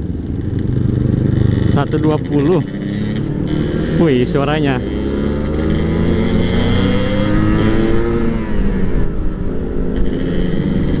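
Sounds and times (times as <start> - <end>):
motorcycle engines running hard: 0.0 - 11.0
wind and road noise: 0.0 - 11.0.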